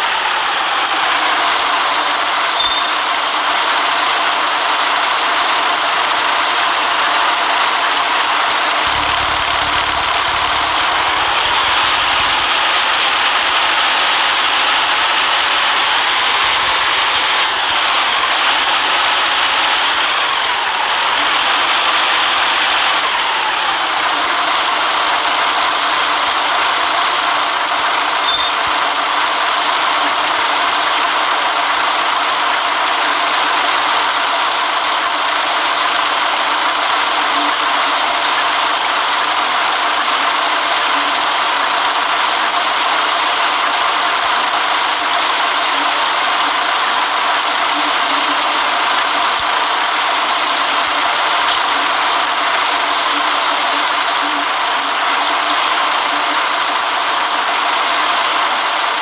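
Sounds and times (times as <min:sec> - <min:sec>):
bus engine running: 0:00.0 - 0:59.0
road noise: 0:00.0 - 0:59.0.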